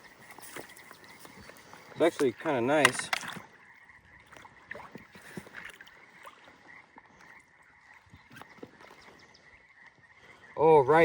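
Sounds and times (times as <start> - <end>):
small water splashes and drips: 4.2 - 9.2.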